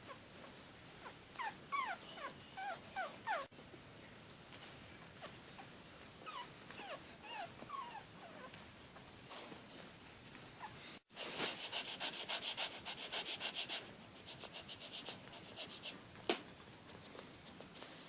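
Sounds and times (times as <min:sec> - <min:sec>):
puppy whimpering: 0:01.0 - 0:03.5, 0:05.2 - 0:08.6.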